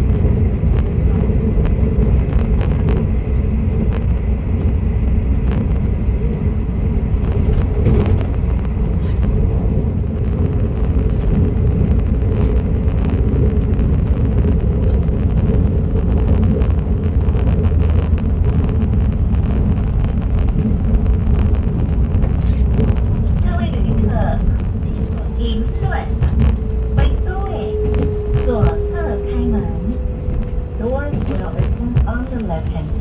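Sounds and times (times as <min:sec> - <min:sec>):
train rumbling along track: 0:00.0 - 0:33.0
faint track clicks: 0:22.1 - 0:33.0.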